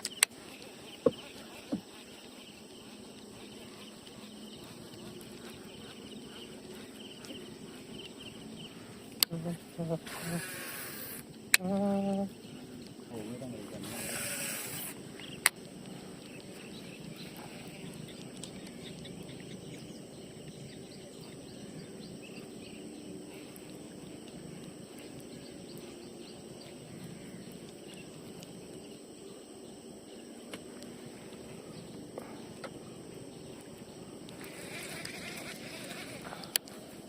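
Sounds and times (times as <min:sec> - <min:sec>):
faint clicks: 0:00.0 - 0:01.8, 0:09.1 - 0:09.4, 0:33.6 - 0:36.8
outdoor background noise: 0:00.0 - 0:37.0.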